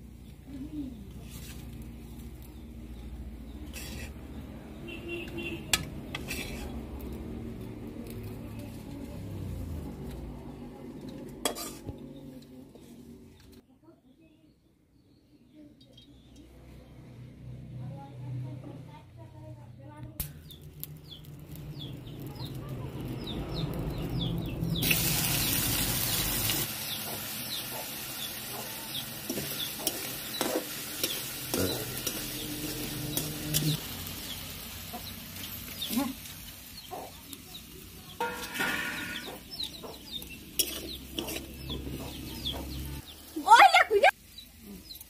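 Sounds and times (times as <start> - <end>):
metal spatula scraping a wok: 1.1 - 2.6, 3.4 - 7.3, 10.9 - 13.6, 27.1 - 35.8, 38.2 - 42.8
food frying in hot oil: 20.6 - 43.4.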